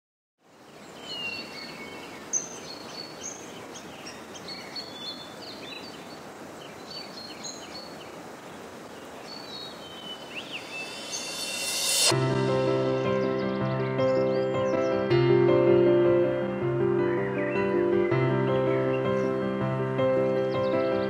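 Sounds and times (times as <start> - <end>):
outdoor background hiss: 0.4 - 21.0
wild birds chirping and whistling: 0.8 - 12.1.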